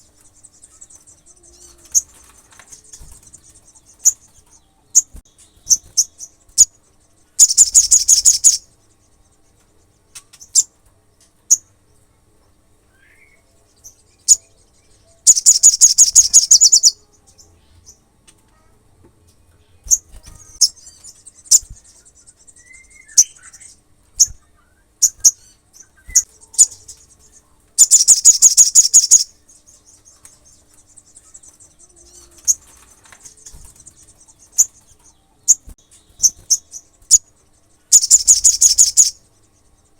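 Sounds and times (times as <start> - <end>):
bird rattling trills: 0.0 - 6.8, 7.4 - 8.7, 15.2 - 17.0, 19.9 - 24.4, 25.0 - 39.4
bird high chips: 7.4 - 8.7, 15.2 - 17.0, 19.8 - 39.3.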